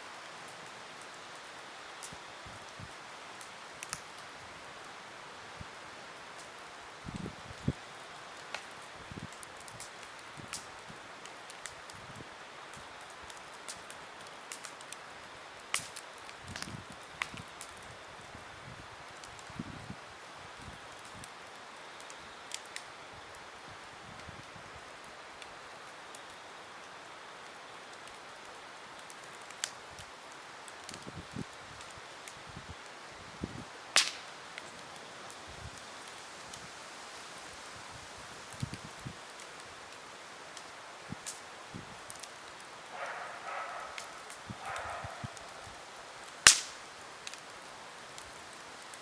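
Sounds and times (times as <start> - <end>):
campfire hissing and crackling: 0.0 - 49.0
loud sharp pop from fire: 15.7 - 17.8, 33.9 - 34.3, 46.2 - 47.4.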